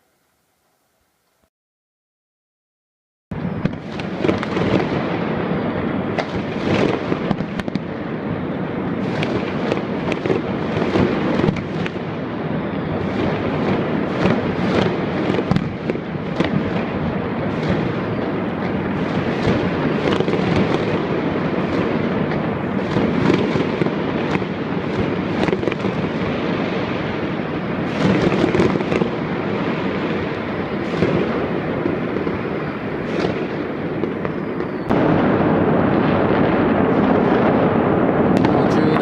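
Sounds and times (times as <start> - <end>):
fireworks and firecrackers banging: 3.3 - 39.0.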